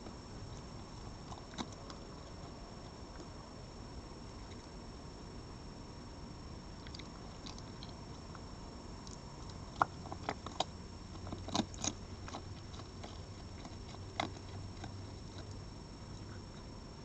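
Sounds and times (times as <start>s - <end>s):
animal chewing food: 0.4s - 3.4s, 6.8s - 16.8s.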